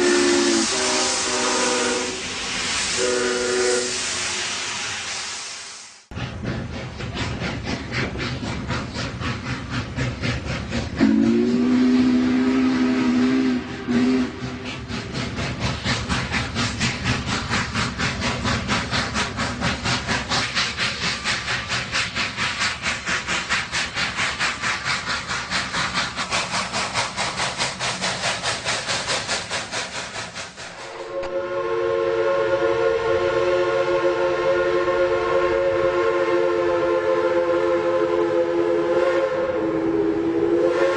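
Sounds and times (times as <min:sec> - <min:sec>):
loud chord-toned steam whistle: 0:00.0 - 0:05.8, 0:11.0 - 0:14.4, 0:30.9 - 0:40.9
steam locomotive chuffing: 0:00.0 - 0:40.9.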